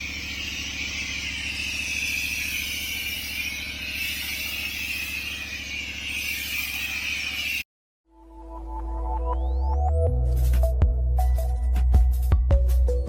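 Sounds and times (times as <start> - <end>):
pressure washer engine running: 0.0 - 7.6.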